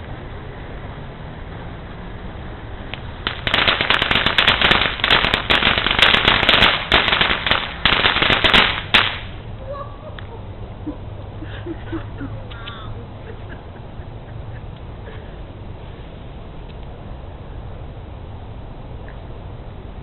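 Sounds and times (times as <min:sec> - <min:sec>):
firecrackers popping: 0:02.9 - 0:09.5.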